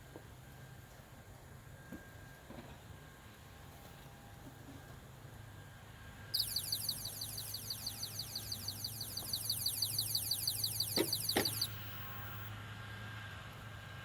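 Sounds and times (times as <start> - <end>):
high falling chirps: 6.4 - 13.6.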